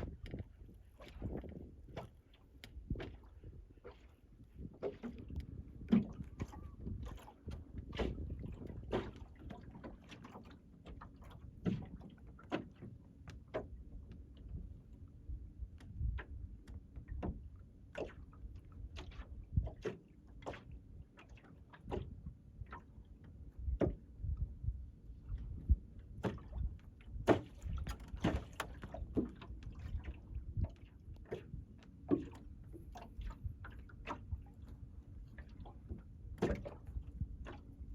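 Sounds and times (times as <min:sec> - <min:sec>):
low steady rumble: 0:00.0 - 0:19.8, 0:21.7 - 0:37.9
water slapping at hull: 0:00.0 - 0:37.9
hull knocks and creaks: 0:27.2 - 0:30.0.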